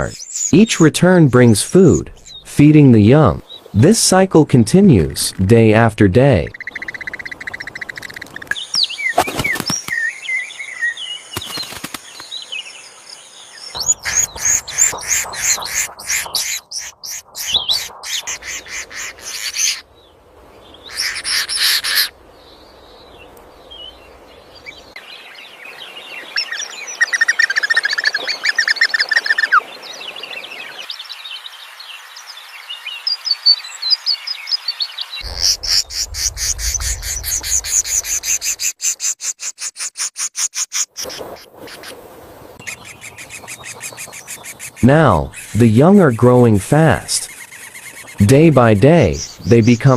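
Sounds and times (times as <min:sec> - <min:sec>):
small birds chirping: 0:00.0 - 0:03.8, 0:06.4 - 0:42.0, 0:42.6 - 0:49.9
fast even pulsing: 0:13.8 - 0:19.2, 0:35.2 - 0:38.6
low rumble: 0:35.2 - 0:38.6.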